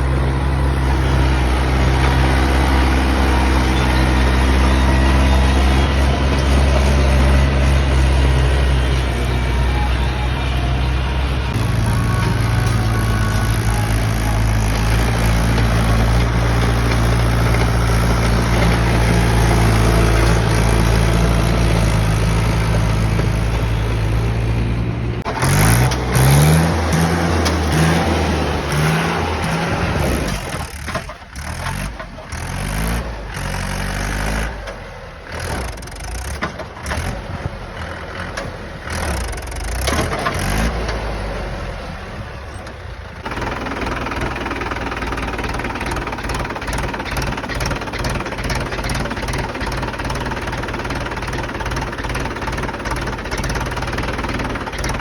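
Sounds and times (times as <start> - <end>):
tractor engine under load: 0.0 - 55.0.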